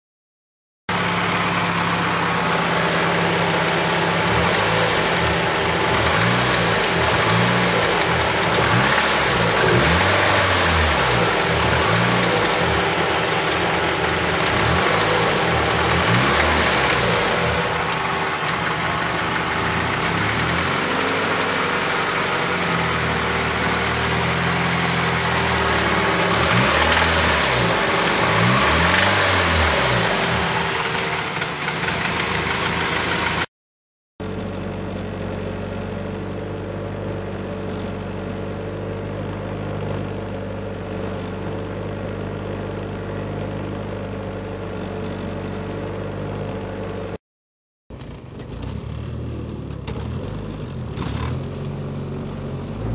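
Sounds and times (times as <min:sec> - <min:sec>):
car engine idling: 0:00.9 - 0:33.5, 0:34.2 - 0:47.1
car engine knocking and revving: 0:00.9 - 0:33.5, 0:47.9 - 0:52.9.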